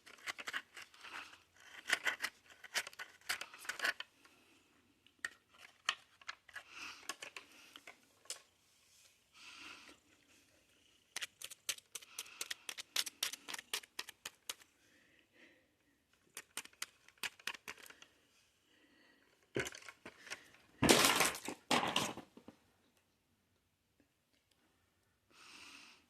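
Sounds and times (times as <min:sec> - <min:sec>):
cookie packaging crackling: 0:11.0 - 0:14.7, 0:16.2 - 0:18.1.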